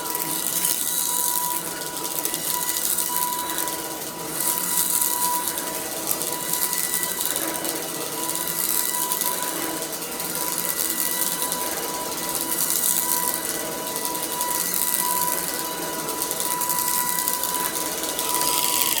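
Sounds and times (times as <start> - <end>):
cordless vacuum running: 0.0 - 19.0.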